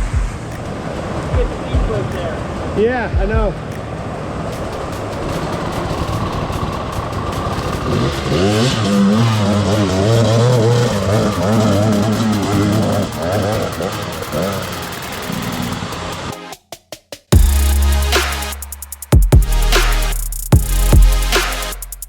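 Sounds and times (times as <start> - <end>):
dirt bike engine revving: 4.4 - 16.3.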